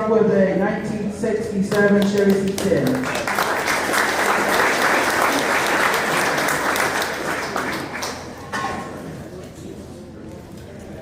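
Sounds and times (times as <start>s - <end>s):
crowd applauding: 2.0s - 8.4s.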